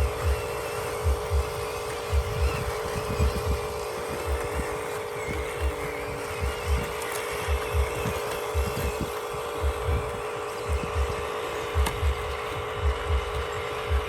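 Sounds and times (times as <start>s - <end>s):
small electric motors whining: 0.0s - 14.0s.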